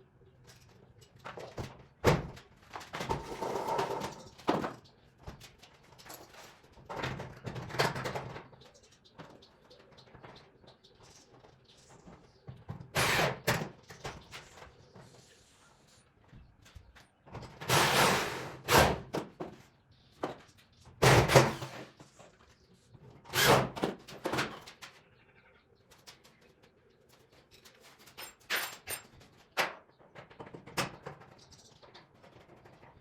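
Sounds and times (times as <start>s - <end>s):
short scraping noises: 17.7s - 19.0s.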